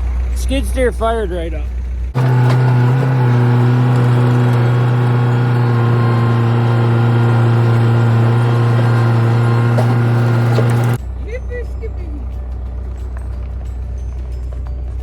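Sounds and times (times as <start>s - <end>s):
skid steer engine droning: 0.0s - 15.0s.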